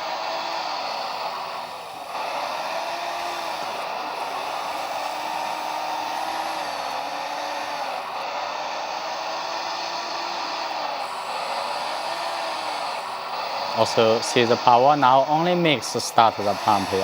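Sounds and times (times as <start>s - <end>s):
simulated excavator whirring hum: 0.0s - 17.0s.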